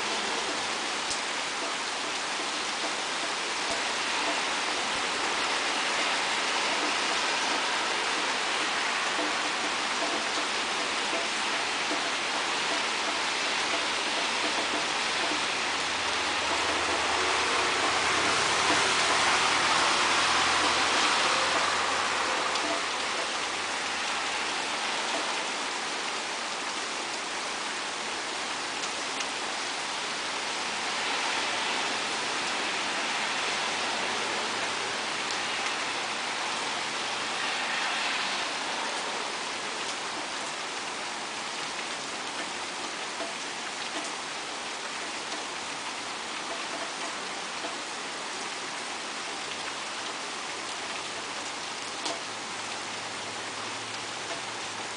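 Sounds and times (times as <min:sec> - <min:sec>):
rain pattering: 0:00.0 - 0:54.9.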